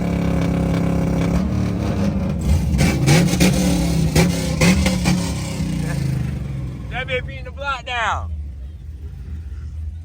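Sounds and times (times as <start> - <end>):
car exhaust revving: 0.0 - 7.4.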